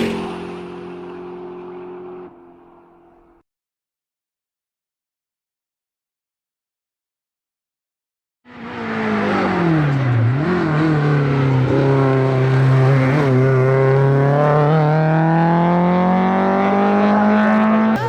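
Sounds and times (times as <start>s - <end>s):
car engine accelerating hard: 0.0s - 3.2s, 8.5s - 18.0s.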